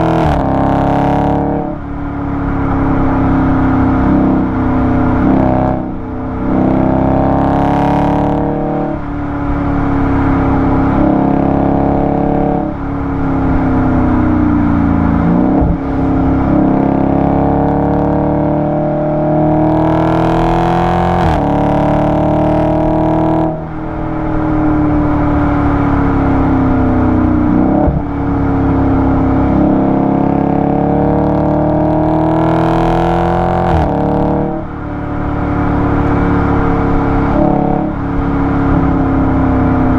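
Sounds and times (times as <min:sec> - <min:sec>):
car exhaust accelerating through gears: 0:00.0 - 0:39.9.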